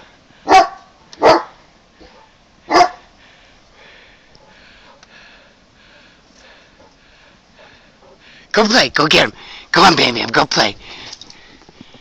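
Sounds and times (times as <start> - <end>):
dog barking: 0.4 - 3.1, 4.4 - 5.1.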